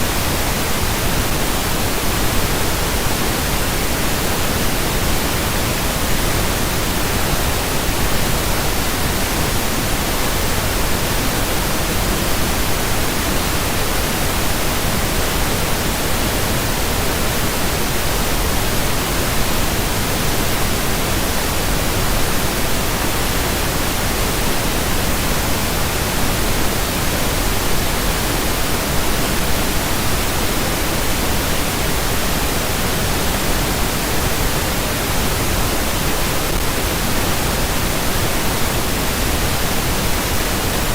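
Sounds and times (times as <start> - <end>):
pink noise hiss: 0.0 - 40.9.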